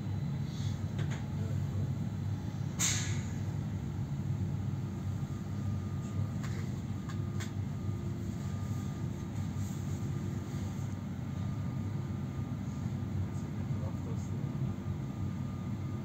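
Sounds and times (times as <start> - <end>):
train carriage hum: 0.0 - 16.0
short sharp hiss: 2.8 - 3.4.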